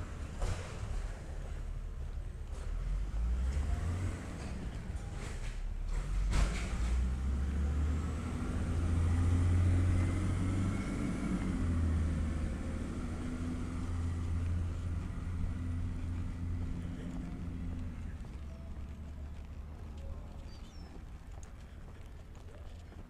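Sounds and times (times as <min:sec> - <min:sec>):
garbage truck engine running: 0:02.5 - 0:19.8.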